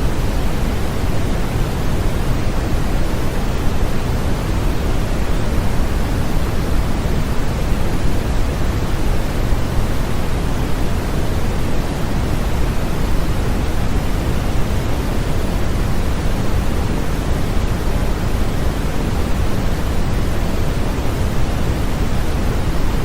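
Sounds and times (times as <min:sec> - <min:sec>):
white noise hiss: 0:00.0 - 0:23.0.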